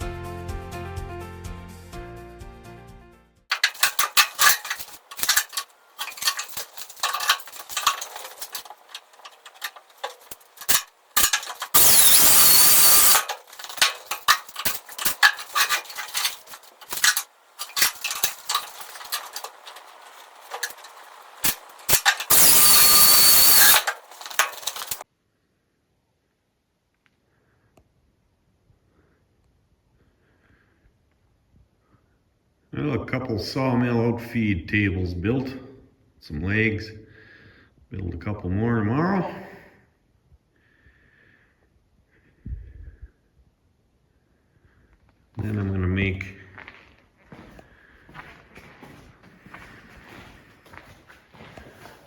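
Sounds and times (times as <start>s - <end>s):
power saw whining: 3.5s - 25.0s.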